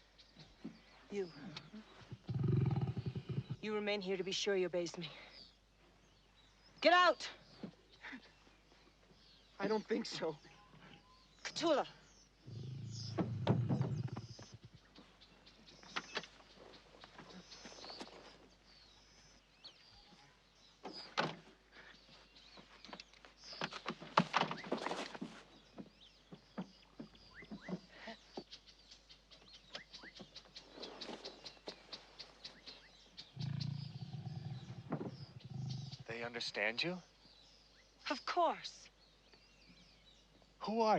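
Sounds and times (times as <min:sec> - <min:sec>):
wild animal growling and snarling: 0:02.1 - 0:03.6, 0:12.4 - 0:14.7, 0:33.3 - 0:36.1.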